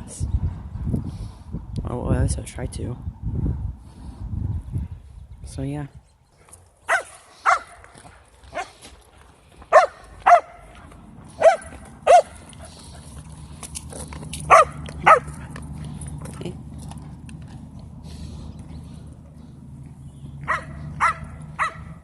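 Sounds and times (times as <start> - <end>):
dog barking: 6.9 - 7.8, 8.5 - 8.8, 9.7 - 10.6, 11.4 - 12.4, 14.5 - 15.4, 20.4 - 22.0.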